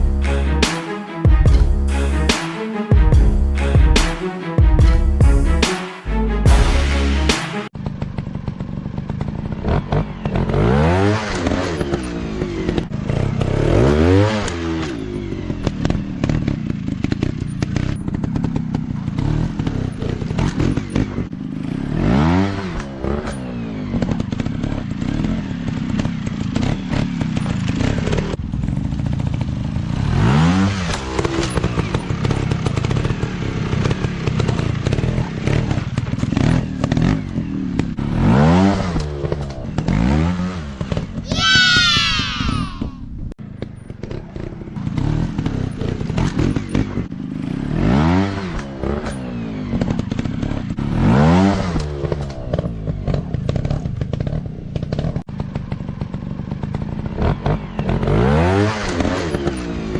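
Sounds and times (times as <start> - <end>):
steady engine drone: 0.0 - 2.4
dirt bike engines revving: 29.7 - 43.0.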